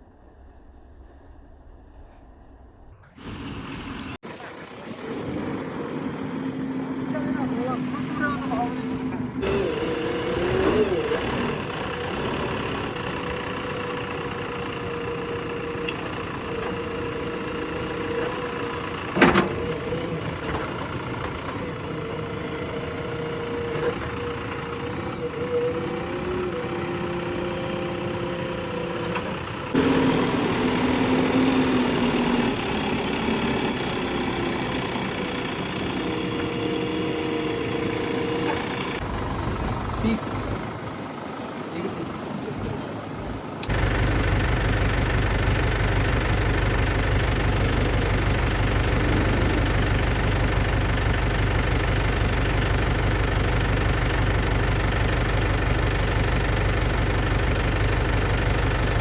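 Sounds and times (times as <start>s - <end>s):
diesel engine running: 3.1s - 59.0s.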